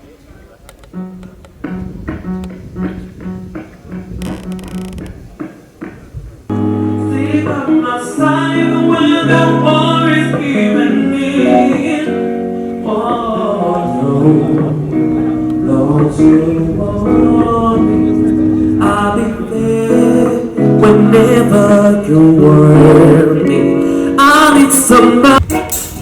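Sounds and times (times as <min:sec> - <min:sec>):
person singing: 0:06.5 - 0:25.5
sustained chords: 0:10.9 - 0:23.8.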